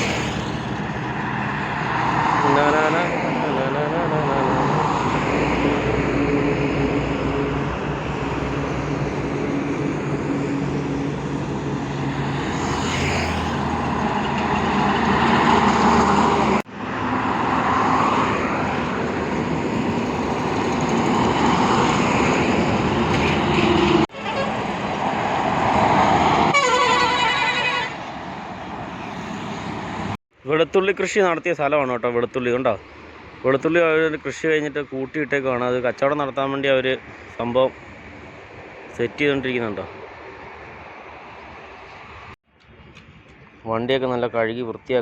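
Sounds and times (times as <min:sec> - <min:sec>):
heavy vehicle engines passing: 0:00.0 - 0:30.2
vehicle horn: 0:24.1 - 0:24.6, 0:26.5 - 0:28.1.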